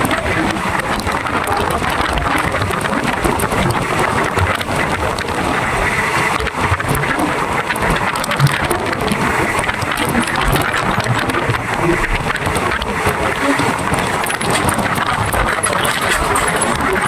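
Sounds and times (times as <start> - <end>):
train running on rails: 0.0 - 17.0
quick rattles and knocks: 13.5 - 17.0.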